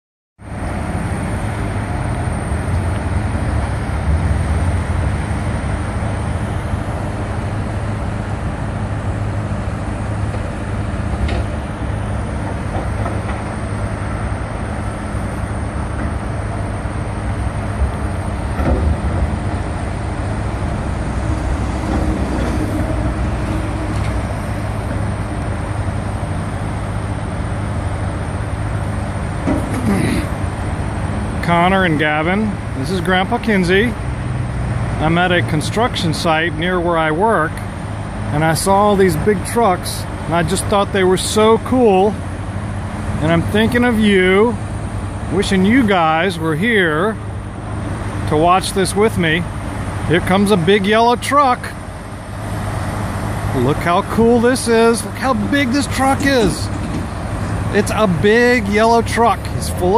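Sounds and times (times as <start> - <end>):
construction equipment engine rumble: 0.4 - 59.9.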